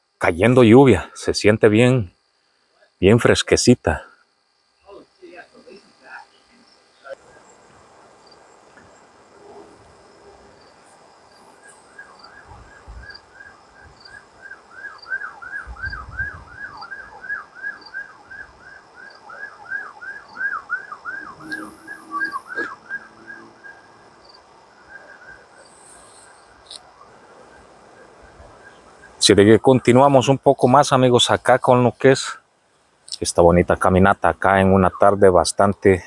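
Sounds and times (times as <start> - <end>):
faint insect chirping: 0.0 - 36.0
bird whistling down-slurred notes: 14.1 - 24.0.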